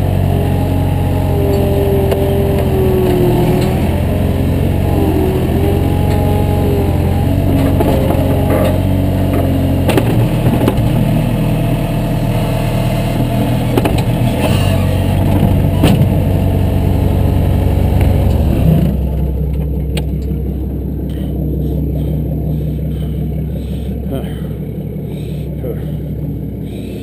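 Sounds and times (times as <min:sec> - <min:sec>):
vehicle engine running: 0:00.0 - 0:27.0
clattering and knocks: 0:07.5 - 0:11.2, 0:13.2 - 0:16.3.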